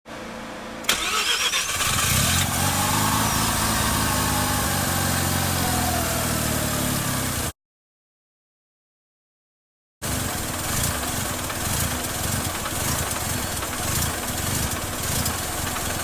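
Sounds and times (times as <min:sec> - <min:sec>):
turbo whine: 0:02.3 - 0:06.9
rotary engine idling: 0:10.1 - 0:16.0.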